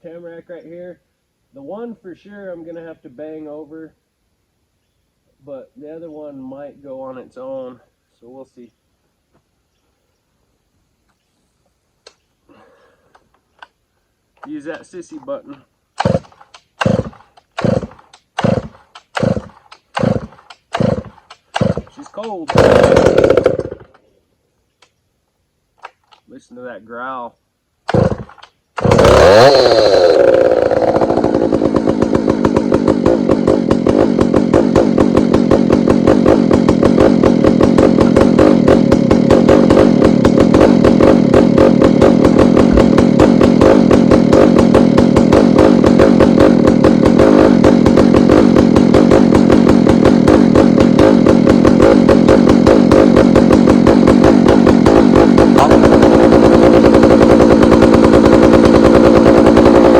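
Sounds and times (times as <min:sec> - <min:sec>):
chainsaw engine starting and idling: 0:14.4 - 0:24.1, 0:27.8 - 0:59.9.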